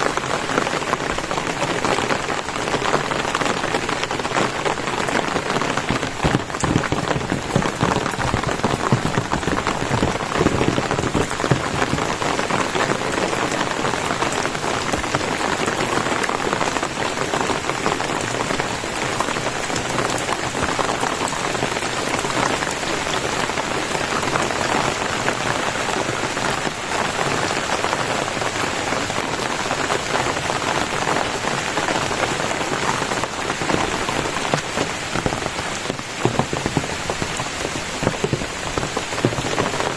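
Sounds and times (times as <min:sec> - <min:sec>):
rain drops hissing: 0:00.0 - 0:39.9.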